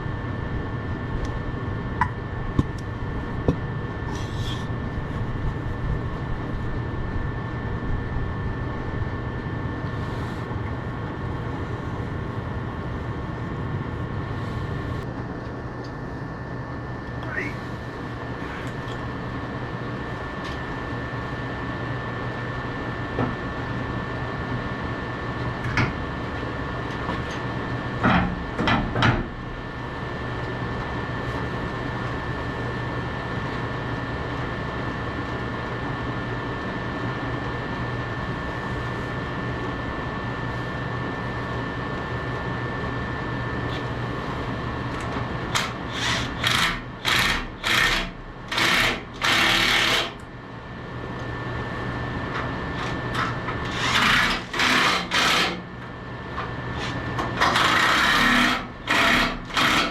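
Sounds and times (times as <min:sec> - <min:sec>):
skid steer engine running: 0:44.9 - 0:50.2, 0:52.3 - 0:55.7, 0:56.4 - 0:59.9.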